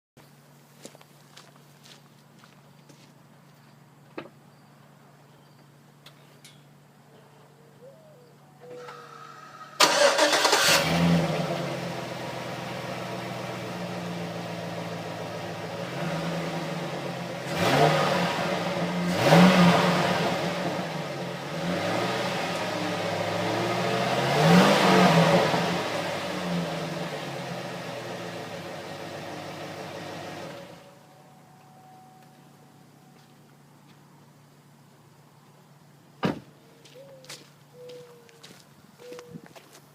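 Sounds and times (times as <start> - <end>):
truck engine starting and revving: 8.7 - 30.9.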